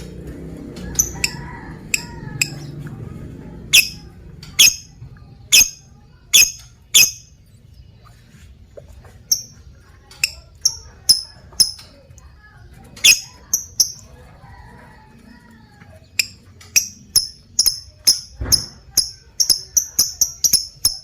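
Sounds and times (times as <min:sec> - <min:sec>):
soft bird chatter: 0:00.0 - 0:21.0
bird high-pitched calls: 0:03.7 - 0:04.0, 0:04.6 - 0:04.9, 0:05.5 - 0:07.4, 0:13.0 - 0:14.1.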